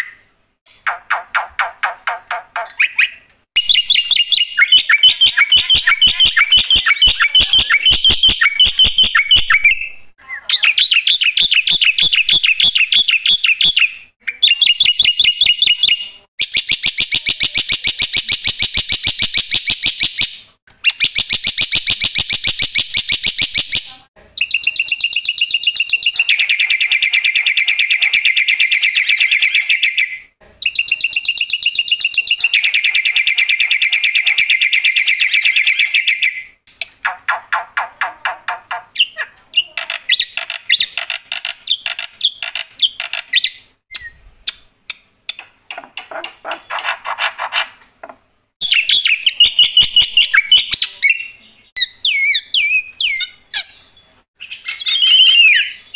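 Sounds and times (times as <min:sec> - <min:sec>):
bird singing shrill notes: 0:02.9 - 0:16.1, 0:48.6 - 0:55.9.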